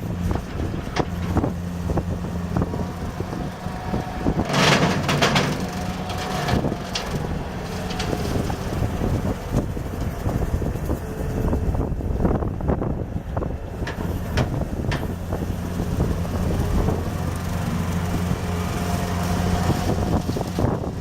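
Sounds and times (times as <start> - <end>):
skid steer engine running: 0.0 - 21.0
knocks and clatter: 2.7 - 11.0, 13.8 - 15.2.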